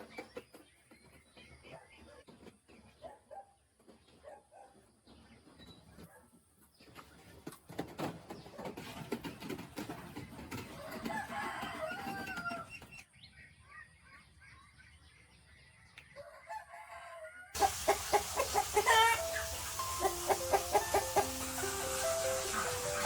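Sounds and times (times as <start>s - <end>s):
poultry clucking: 0.0s - 13.0s, 15.9s - 23.0s
gliding bird call: 17.6s - 23.0s
quick repeated poultry calls: 17.6s - 23.0s.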